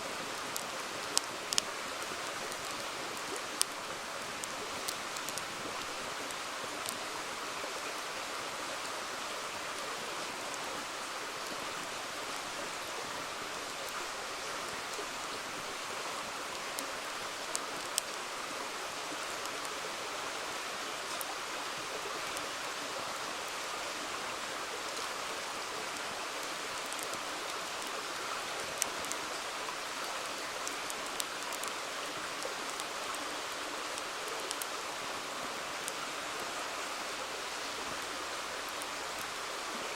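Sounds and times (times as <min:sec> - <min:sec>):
river flowing: 0:00.0 - 0:39.9
campfire popping: 0:00.3 - 0:07.1, 0:16.5 - 0:18.2, 0:26.4 - 0:28.0, 0:28.6 - 0:29.4, 0:30.6 - 0:33.2, 0:33.9 - 0:34.7.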